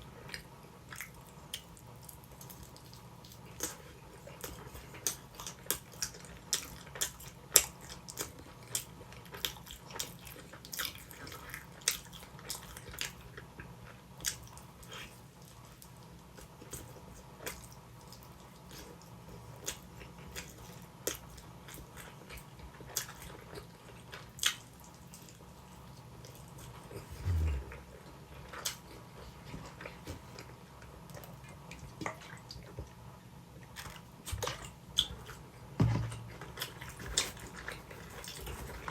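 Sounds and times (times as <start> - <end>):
person chewing with wet smacks: 0.0 - 38.9
dull low thump: 27.1 - 27.9.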